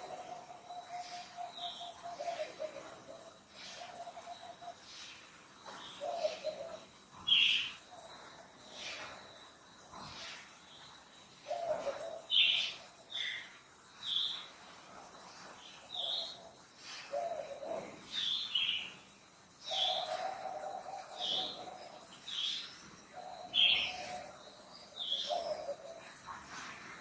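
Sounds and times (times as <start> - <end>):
lower steady bird call: 0.0 - 27.0.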